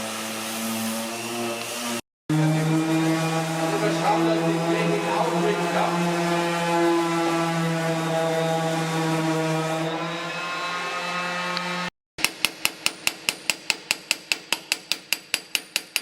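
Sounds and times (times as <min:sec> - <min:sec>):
workshop machine droning hum: 0:01.0 - 0:09.0.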